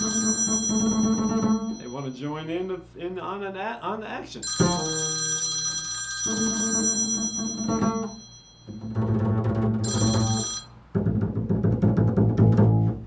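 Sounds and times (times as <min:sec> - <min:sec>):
telephone ringing: 0:00.0 - 0:02.8, 0:04.4 - 0:10.8.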